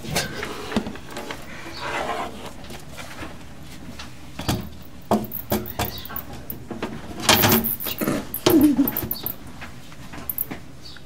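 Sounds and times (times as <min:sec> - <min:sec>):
sharp clicks and knocks: 0:04.4 - 0:09.5.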